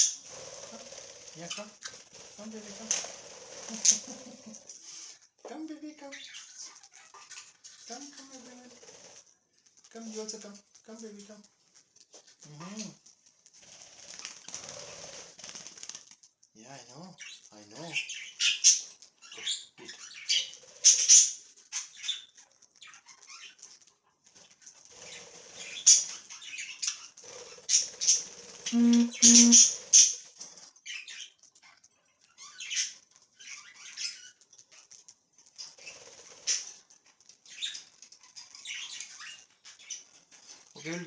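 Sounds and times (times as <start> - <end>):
budgerigars chattering and chirping: 0.0 - 5.0, 17.2 - 23.6, 25.0 - 30.2, 32.3 - 34.4, 37.5 - 40.1.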